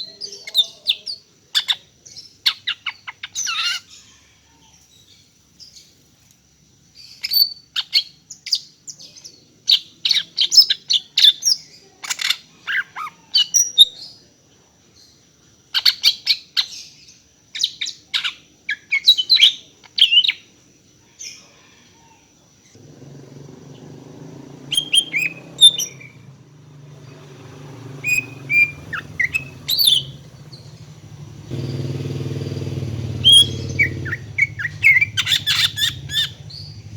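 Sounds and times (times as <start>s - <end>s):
bird chirping and whistling: 24.7s - 26.3s, 27.9s - 30.8s, 32.7s - 36.8s.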